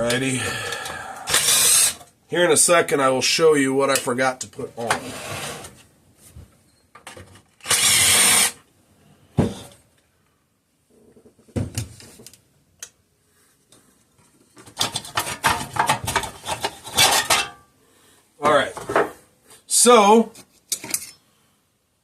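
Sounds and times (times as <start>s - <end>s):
small metal parts clattering: 20.7s - 21.2s.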